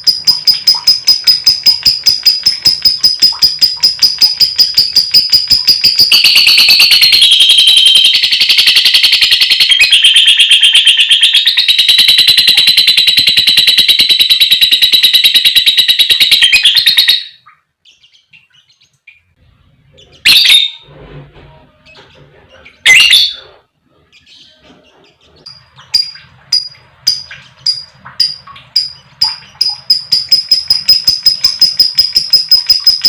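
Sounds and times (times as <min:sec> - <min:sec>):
lovebird chattering trill: 0:00.0 - 0:17.6, 0:24.2 - 0:33.0
bird squawk: 0:22.7 - 0:23.6.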